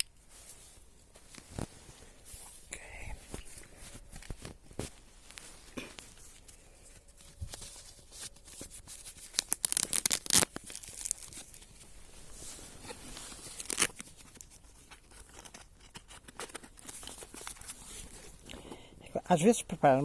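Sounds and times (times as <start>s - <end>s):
dry twigs crackling and rustling: 7.1s - 17.7s.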